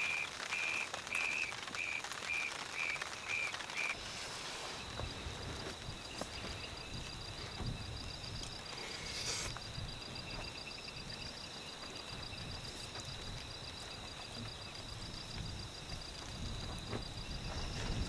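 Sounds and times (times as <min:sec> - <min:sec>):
insects trilling: 0:00.0 - 0:18.0
low rumble of wind: 0:04.7 - 0:18.0.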